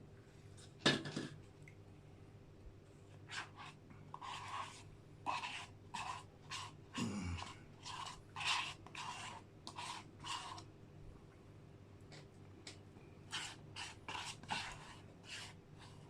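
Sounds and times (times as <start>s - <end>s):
spoon scraping in a bowl: 7.4s - 10.7s.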